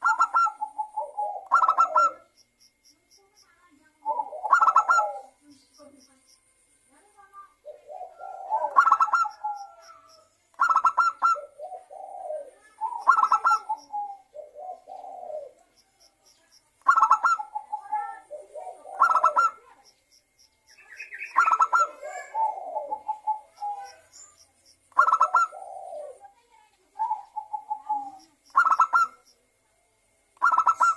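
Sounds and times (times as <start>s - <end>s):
dove cooing: 0.0s - 2.4s, 3.9s - 5.9s, 7.6s - 16.2s, 16.8s - 20.0s, 20.9s - 24.2s, 24.8s - 29.4s, 30.4s - 30.9s.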